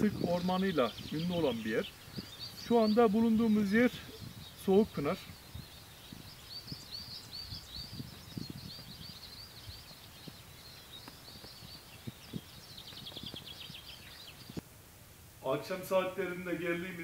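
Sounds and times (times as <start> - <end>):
small birds chirping: 0.0 - 14.7
soft footsteps: 7.8 - 14.7.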